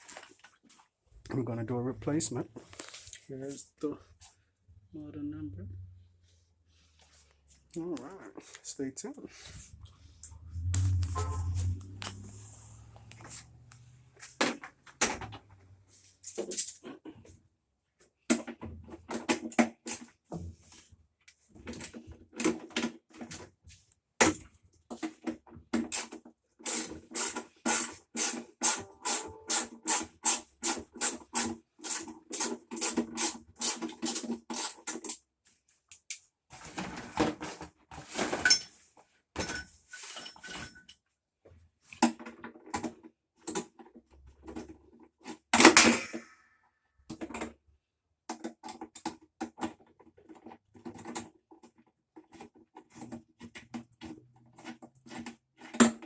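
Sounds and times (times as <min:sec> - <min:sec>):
clatter of tools and parts: 0:00.0 - 0:00.9, 0:09.6 - 0:17.4, 0:29.9 - 0:35.2, 0:35.9 - 0:41.1, 0:41.9 - 0:46.5, 0:48.3 - 0:56.0.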